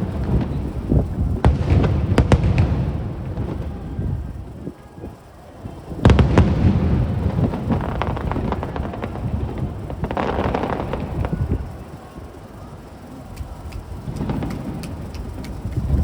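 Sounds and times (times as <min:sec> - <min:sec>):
deep rumbling booms: 0:00.0 - 0:04.6, 0:06.0 - 0:11.8
fireworks bursting: 0:00.0 - 0:16.0
sharp cracks: 0:13.3 - 0:16.0.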